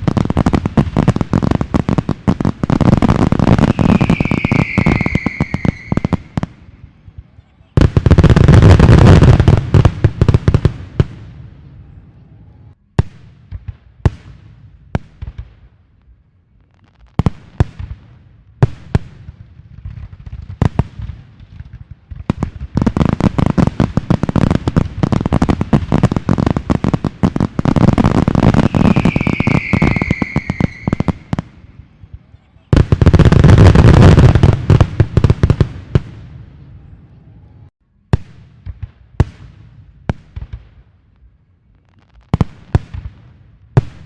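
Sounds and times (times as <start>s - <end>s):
fireworks crackling bangs: 0.0s - 11.9s, 12.9s - 37.0s, 41.8s - 44.0s
high whistle sliding down: 3.6s - 6.4s, 28.5s - 31.3s.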